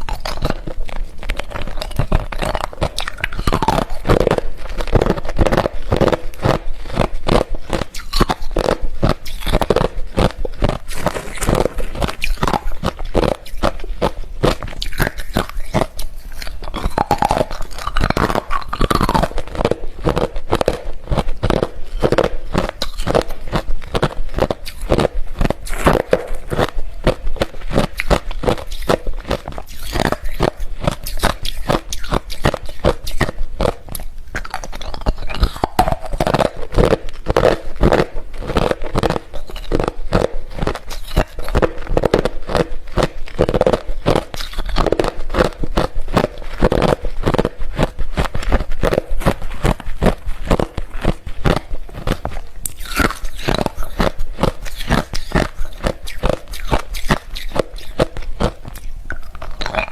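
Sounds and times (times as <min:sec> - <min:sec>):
person crunching ice: 0:00.0 - 0:59.9.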